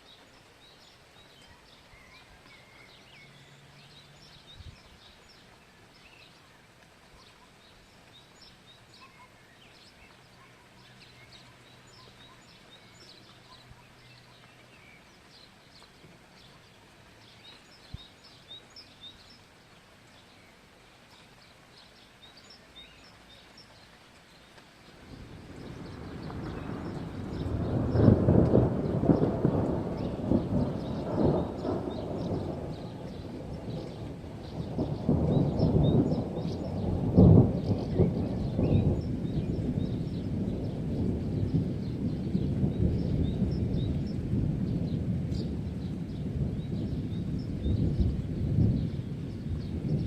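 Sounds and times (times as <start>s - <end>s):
small birds chirping: 0.0s - 50.0s
thunder rumble: 24.9s - 50.0s.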